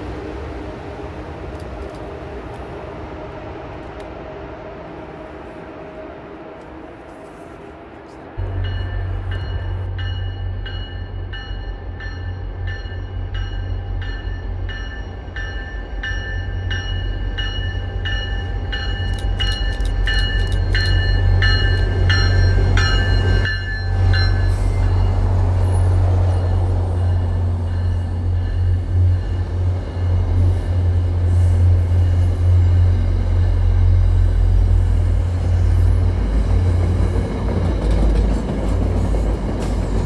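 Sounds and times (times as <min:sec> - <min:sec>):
diesel locomotive engine rumble: 0:00.0 - 0:40.0
train coaches rolling past: 0:00.0 - 0:40.0
locomotive bell ringing: 0:08.4 - 0:31.1.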